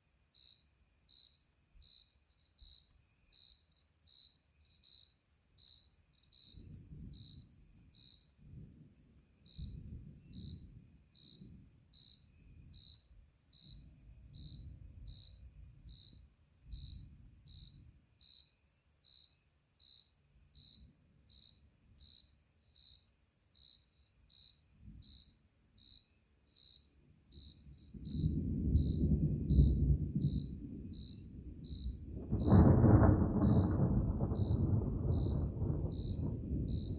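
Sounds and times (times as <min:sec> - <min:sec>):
cricket chirping: 0:00.0 - 0:36.9
distant thunder rumbling: 0:06.4 - 0:13.0, 0:13.6 - 0:17.9, 0:27.4 - 0:36.9.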